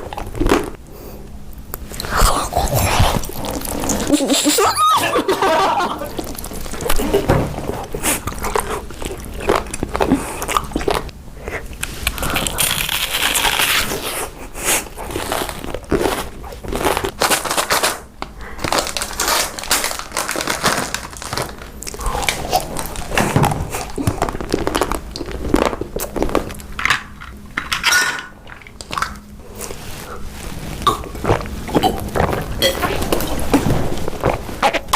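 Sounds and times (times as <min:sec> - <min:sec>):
crunchy bites and chewing: 0:00.0 - 0:00.8, 0:06.0 - 0:27.4
crackles and crinkling: 0:00.0 - 0:34.9.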